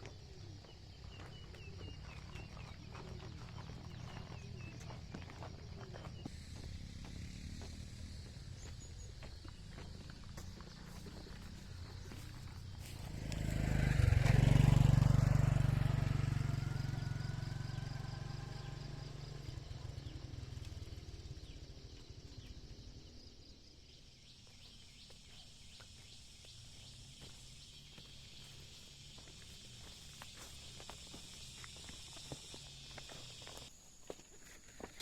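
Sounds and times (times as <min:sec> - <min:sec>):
motor vehicle passing: 0:06.1 - 0:21.1.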